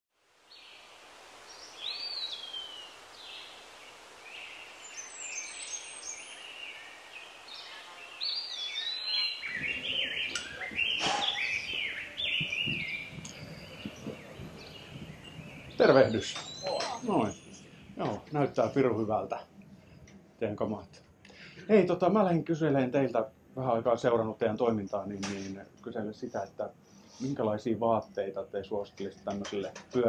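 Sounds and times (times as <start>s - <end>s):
birds chirping and whistling: 1.5s - 3.6s, 4.2s - 20.2s.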